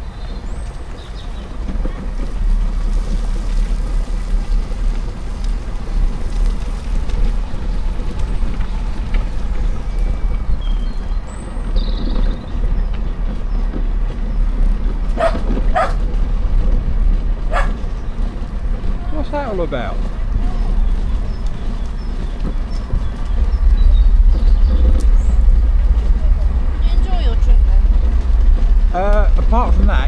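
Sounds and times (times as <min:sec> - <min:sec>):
faint birdsong: 0:00.0 - 0:26.2
low rumble while moving: 0:00.0 - 0:30.0
dog barking: 0:15.2 - 0:16.0, 0:17.5 - 0:18.0.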